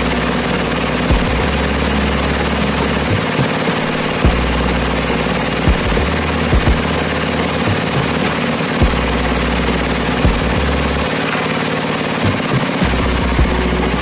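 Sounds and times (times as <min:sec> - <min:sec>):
drilling rig engine running: 0:00.0 - 0:14.0
low hum: 0:00.0 - 0:14.0.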